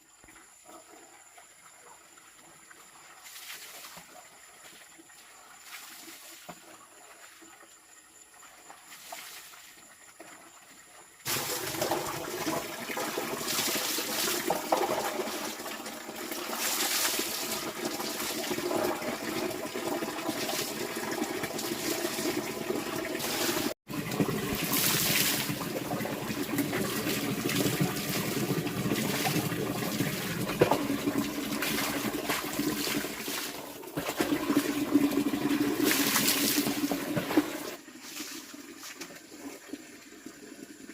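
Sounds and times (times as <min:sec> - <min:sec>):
water running and splashing: 0:11.3 - 0:40.8.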